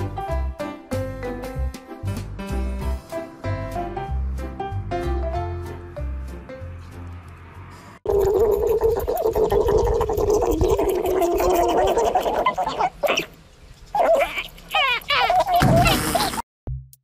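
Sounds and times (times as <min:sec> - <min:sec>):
guinea pig gurgling call: 0:08.1 - 0:16.4
guinea pig warbling high call: 0:08.1 - 0:16.4
guinea pig squeaks: 0:13.9 - 0:16.4.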